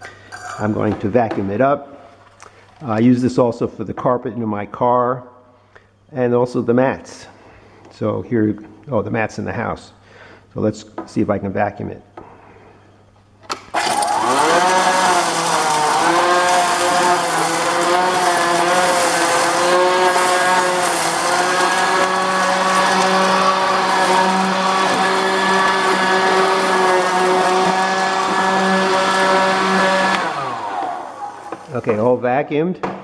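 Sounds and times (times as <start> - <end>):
vacuum motor whining: 13.5 - 32.1.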